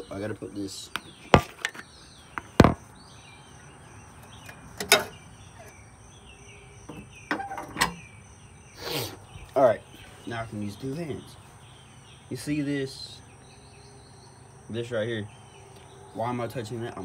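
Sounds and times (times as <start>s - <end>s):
faint outdoor chirping: 0.0s - 17.0s
object set down knocking: 1.3s - 2.8s.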